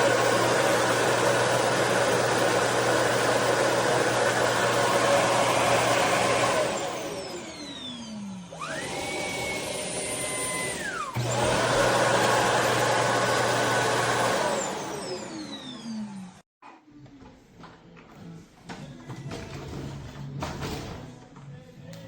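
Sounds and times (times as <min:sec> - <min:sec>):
motor winding down whine: 0:00.0 - 0:16.4
stick vacuum whirring: 0:00.0 - 0:16.4.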